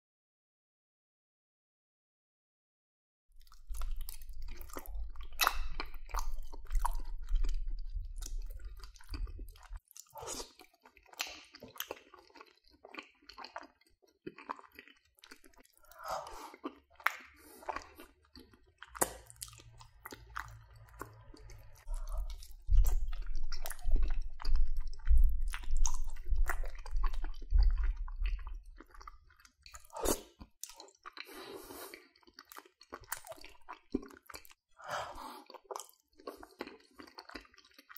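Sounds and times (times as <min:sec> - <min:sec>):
chewing mouth sounds: 0:03.4 - 0:37.9
deep low rumble: 0:19.8 - 0:28.6.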